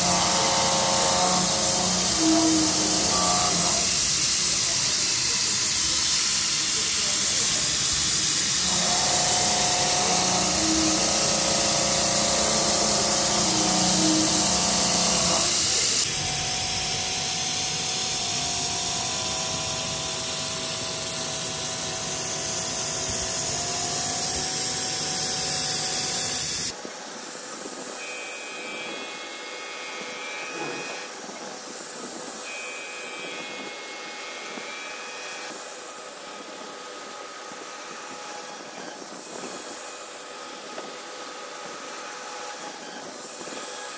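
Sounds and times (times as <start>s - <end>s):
milling machine hiss and whine: 0.0s - 43.9s.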